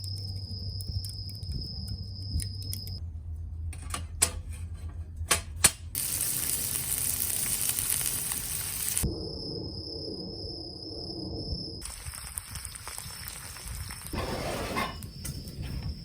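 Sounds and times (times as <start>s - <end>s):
high insect trill: 0.0s - 3.0s, 6.0s - 16.0s
steady hiss: 6.0s - 9.0s, 11.8s - 15.6s.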